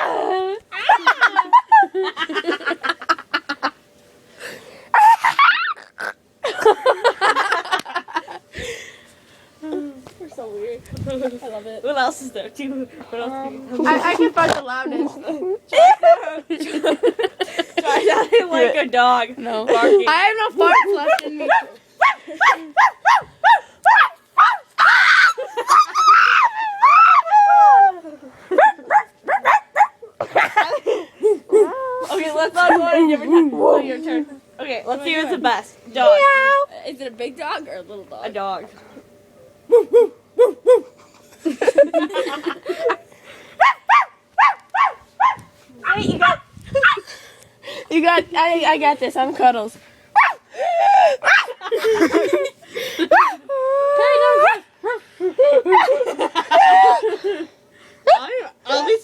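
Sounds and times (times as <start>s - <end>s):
girl screaming: 4.9s - 6.0s, 23.9s - 28.0s, 53.1s - 54.6s
girls making silly noises: 4.9s - 6.3s, 22.0s - 29.0s, 31.2s - 33.7s, 53.0s - 54.8s, 55.6s - 57.2s
girl drawn-out cry: 53.1s - 54.6s.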